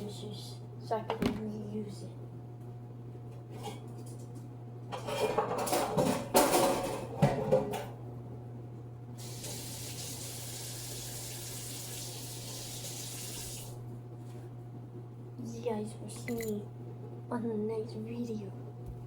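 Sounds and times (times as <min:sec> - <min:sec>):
dishes clattering in sink: 0:04.9 - 0:07.9
tap water running: 0:09.2 - 0:13.8.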